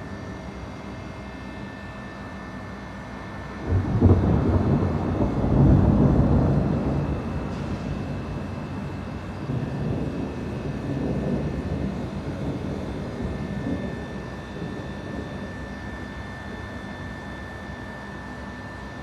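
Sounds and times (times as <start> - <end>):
distant thunder rumbling: 3.6 - 16.8.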